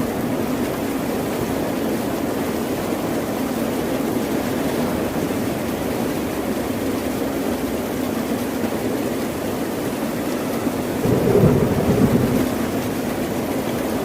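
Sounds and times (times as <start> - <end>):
ocean surf rushing: 11.0 - 14.0.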